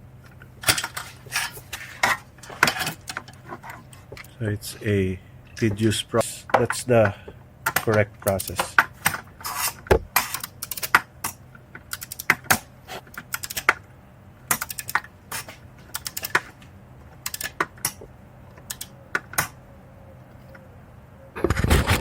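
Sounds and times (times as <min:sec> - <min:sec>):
ratchet clicking: 0:10.2 - 0:12.4, 0:17.2 - 0:18.0.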